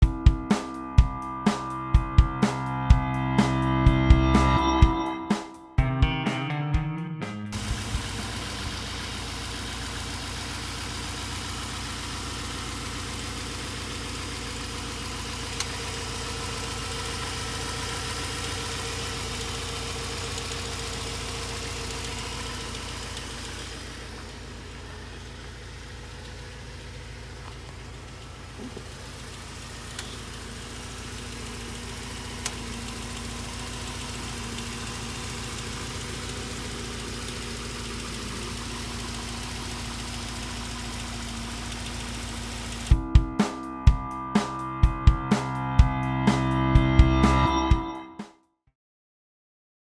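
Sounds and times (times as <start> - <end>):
car engine idling: 7.5 - 44.7.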